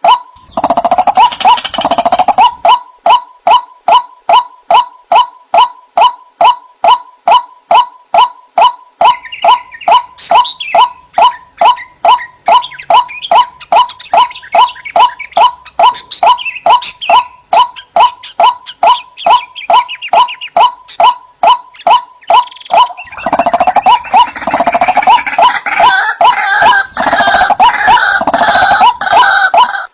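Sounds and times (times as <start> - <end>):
higher chattering bird calls: 0.0 - 29.9
waterhen calling: 0.0 - 29.9.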